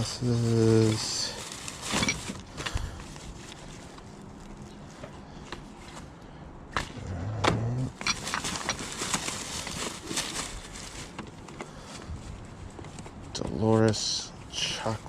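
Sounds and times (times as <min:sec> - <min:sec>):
objects clicking and clattering: 0:01.8 - 0:02.8, 0:07.9 - 0:10.5.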